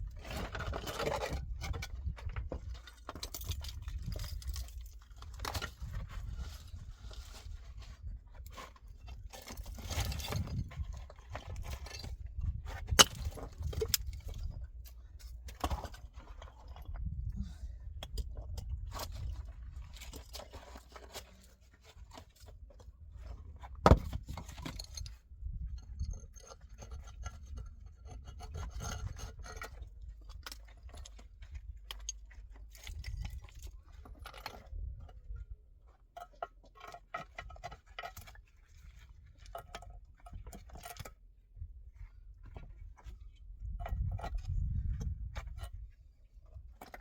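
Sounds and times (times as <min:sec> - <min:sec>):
scraping and rubbing: 0:26.0 - 0:34.7.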